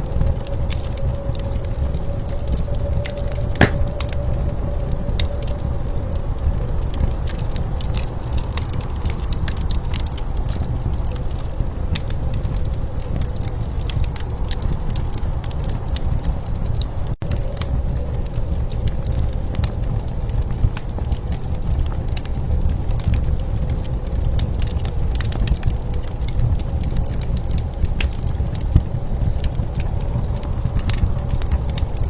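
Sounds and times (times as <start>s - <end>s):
wood fire crackling and popping: 3.6s - 4.0s.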